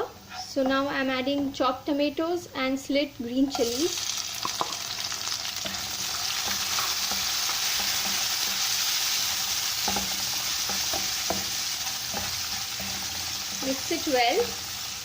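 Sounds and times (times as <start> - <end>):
vegetables sizzling in hot oil: 3.1 - 15.0
stirring knocks: 9.8 - 14.6.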